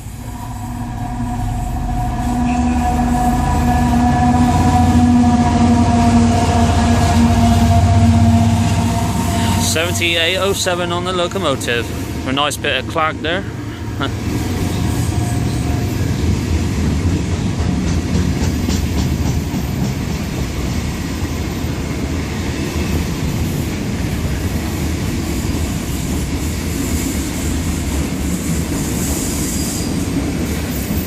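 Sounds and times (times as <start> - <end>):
low train rumble: 0.0 - 31.0
freight train wheels clacking: 14.2 - 31.0.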